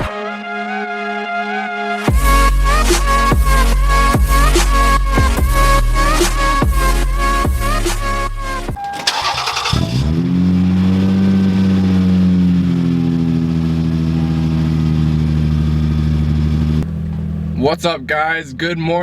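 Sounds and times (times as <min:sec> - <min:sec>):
car engine starting and idling: 0:08.8 - 0:18.8.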